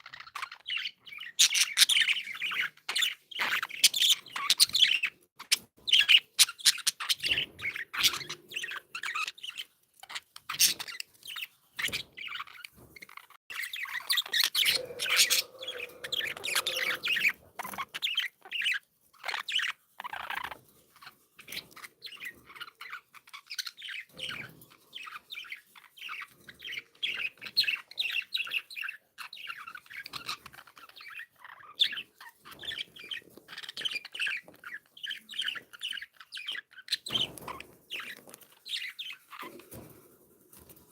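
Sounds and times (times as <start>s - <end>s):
budgerigars chirping: 0.0s - 20.6s, 21.4s - 39.6s.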